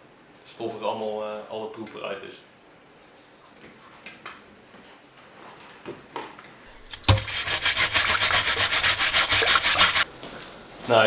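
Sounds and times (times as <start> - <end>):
scrubbing metal mesh in water: 6.9 - 10.0.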